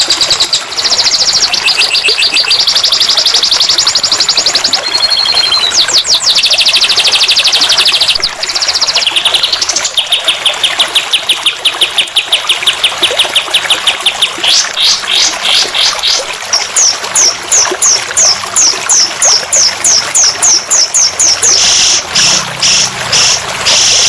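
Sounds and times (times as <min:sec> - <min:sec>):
trickling water: 0:00.0 - 0:24.0
songbird trilling song: 0:00.2 - 0:24.0.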